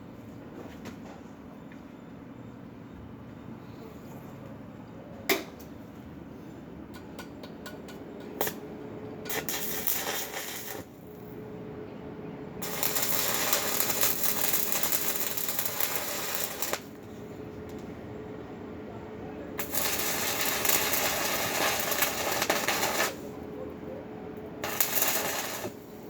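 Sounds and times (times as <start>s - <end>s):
welding arc crackling: 9.3s - 11.1s, 12.6s - 17.9s, 19.5s - 23.5s, 24.6s - 26.0s.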